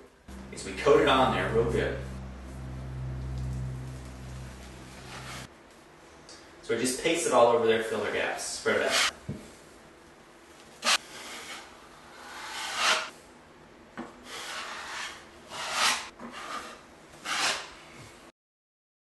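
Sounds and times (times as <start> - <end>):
drywall knife scraping compound: 8.8 - 9.2, 10.8 - 13.2, 14.2 - 17.8.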